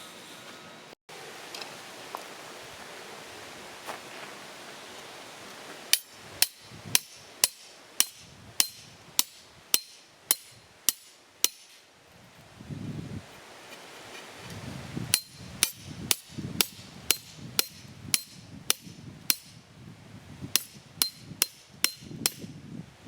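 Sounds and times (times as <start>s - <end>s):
hammer striking tent peg: 5.9s - 11.9s, 15.1s - 19.6s, 20.6s - 22.5s.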